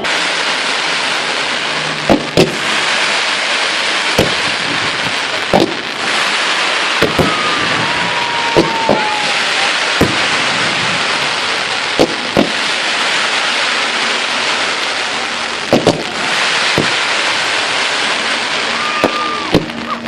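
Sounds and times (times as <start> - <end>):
firework whistle: 0.0 - 20.0
fireworks bangs: 0.0 - 20.0
fireworks crackling: 0.0 - 20.0.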